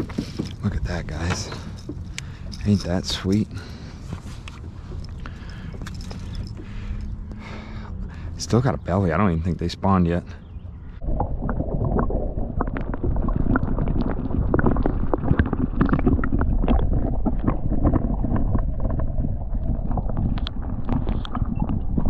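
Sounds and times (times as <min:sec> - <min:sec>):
handling knocks and rustles: 0:00.0 - 0:07.1
wind buffeting microphone: 0:16.4 - 0:22.0.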